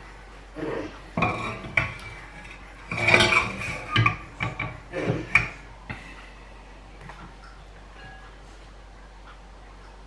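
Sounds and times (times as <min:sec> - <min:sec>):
pots and utensils clattering: 0:00.6 - 0:06.2.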